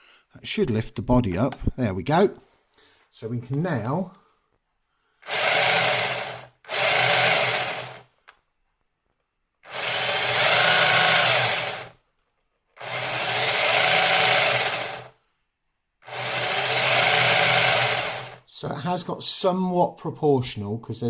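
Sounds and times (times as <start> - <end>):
toy truck electric motor whining: 5.3 - 8.0, 9.6 - 12.0, 12.8 - 15.2, 16.0 - 18.4.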